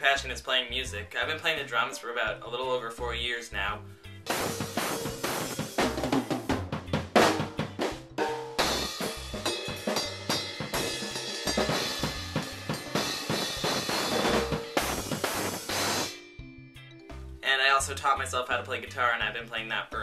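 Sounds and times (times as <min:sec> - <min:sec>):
crash cymbals: 0:04.3 - 0:06.1, 0:08.6 - 0:16.3
kick drum beat: 0:04.3 - 0:16.0
snare and tom hits: 0:04.3 - 0:16.2.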